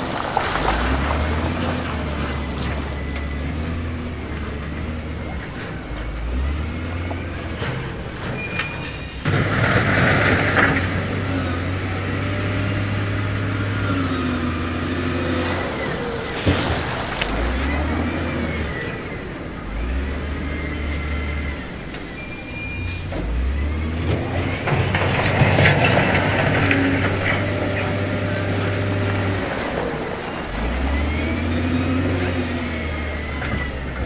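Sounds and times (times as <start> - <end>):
heavy diesel machinery engine: 0.0 - 34.0.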